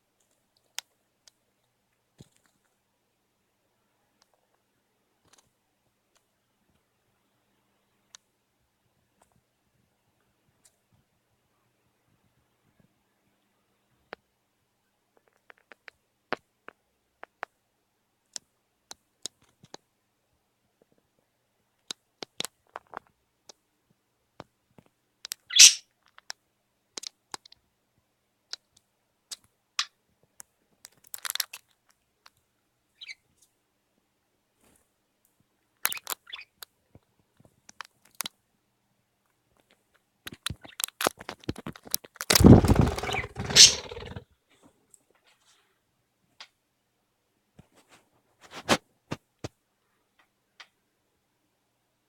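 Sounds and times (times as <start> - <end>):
birds clicking and tapping: 42.3 - 44.2.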